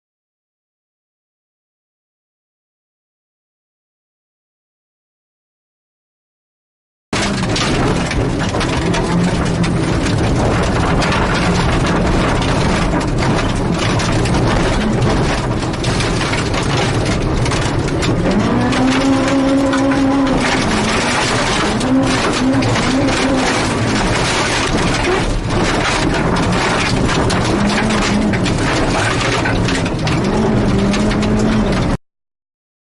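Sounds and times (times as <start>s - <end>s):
car engine running hard: 7.2s - 32.0s.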